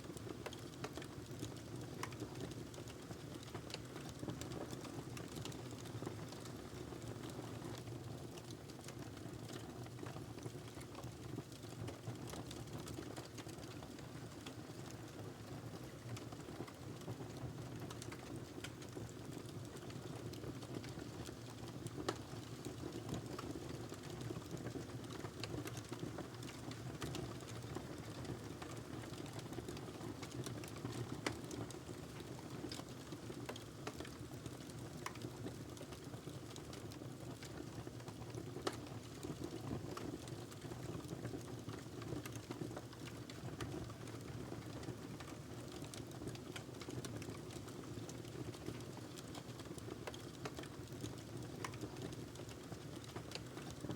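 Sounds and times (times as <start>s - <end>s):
wood crackling and popping: 0.1s - 6.7s, 15.9s - 53.9s.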